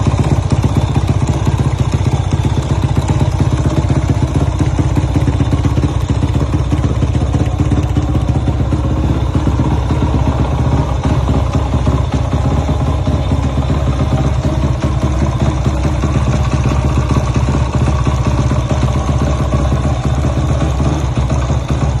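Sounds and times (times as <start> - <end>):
motorcycle engine running steadily: 0.0 - 22.0.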